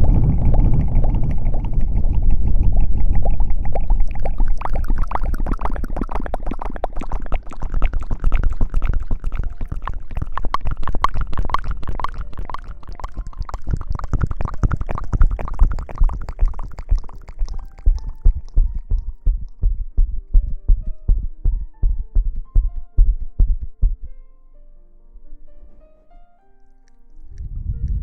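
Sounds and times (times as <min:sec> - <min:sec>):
low rumbling thumps: 0:00.0 - 0:05.0, 0:13.7 - 0:24.1, 0:27.3 - 0:28.0.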